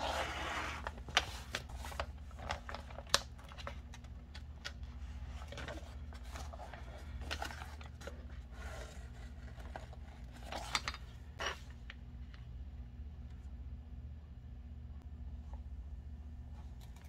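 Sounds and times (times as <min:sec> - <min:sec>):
paper rustling: 0:00.0 - 0:11.7
steady low hum: 0:00.0 - 0:17.0.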